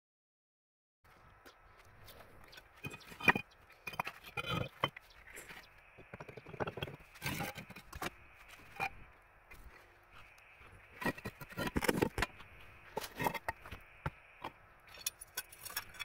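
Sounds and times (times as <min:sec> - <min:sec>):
objects scraping: 0:02.0 - 0:16.0
objects knocking: 0:02.8 - 0:08.2.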